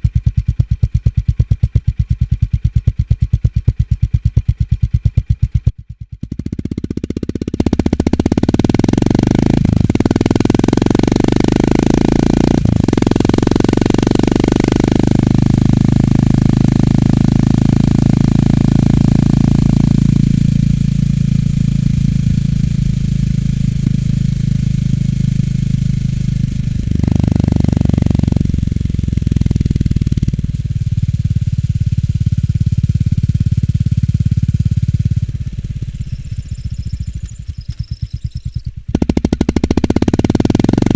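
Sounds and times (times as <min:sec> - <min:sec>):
motorcycle engine thumping: 0:17.1 - 0:40.9.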